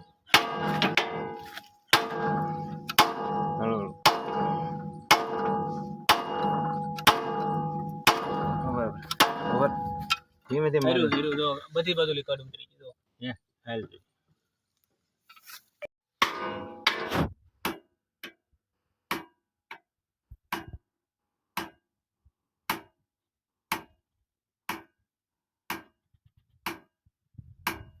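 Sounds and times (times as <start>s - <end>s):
sharp ringing knocks: 0.0s - 10.2s, 16.2s - 17.1s.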